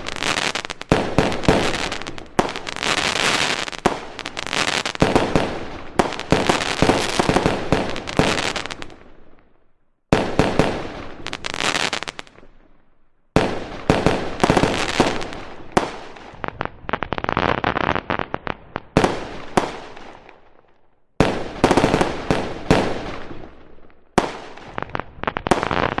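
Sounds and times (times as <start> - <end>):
fireworks crackling pops: 0.0 - 9.0, 10.2 - 12.5, 13.4 - 20.4, 24.2 - 26.0.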